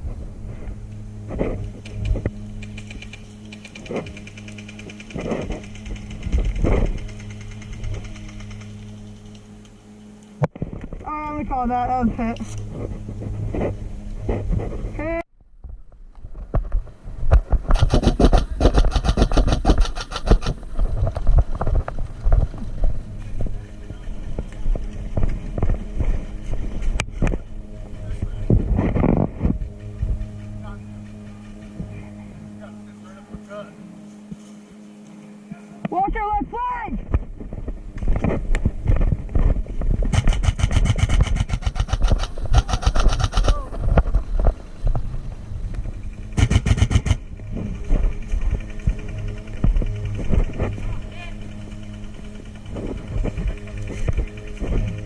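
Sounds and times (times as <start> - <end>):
low rumbling handling noise: 0.0 - 32.7, 37.0 - 55.0
airsoft gun full-auto burst: 17.7 - 20.6, 40.1 - 43.6, 46.4 - 47.2.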